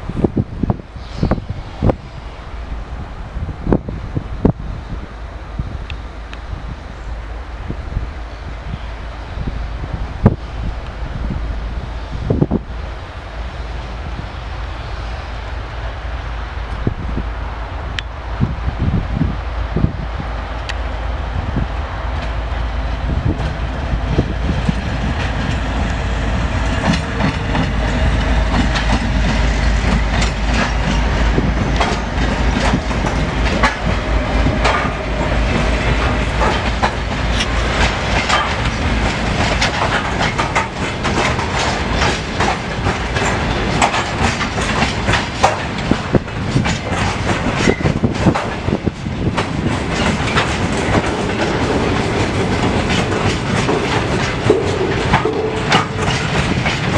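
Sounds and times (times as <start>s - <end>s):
low train rumble: 0.0s - 56.9s
train wheels clattering: 22.1s - 56.9s.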